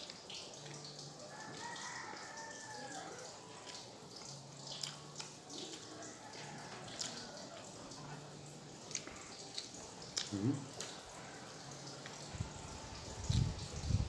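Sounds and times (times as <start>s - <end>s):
chewing with lip smacks: 3.1s - 12.3s.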